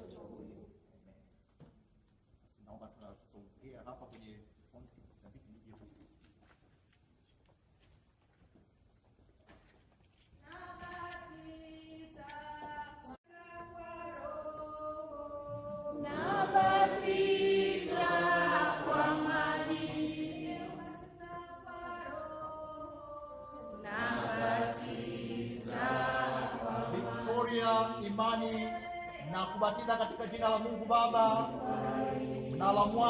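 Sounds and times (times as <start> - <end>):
congregation singing a hymn: 13.8 - 33.0.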